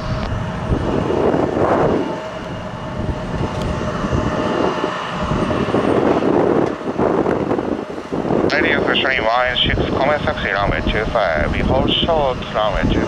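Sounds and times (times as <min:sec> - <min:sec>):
jet engine whine: 0:00.0 - 0:13.0
rushing noise: 0:00.0 - 0:13.0
wind buffeting microphone: 0:00.0 - 0:13.0.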